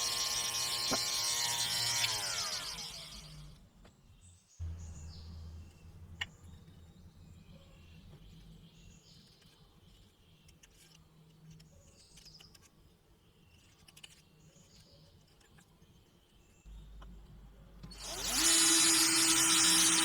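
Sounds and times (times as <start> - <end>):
small birds chirping: 1.9 - 20.0.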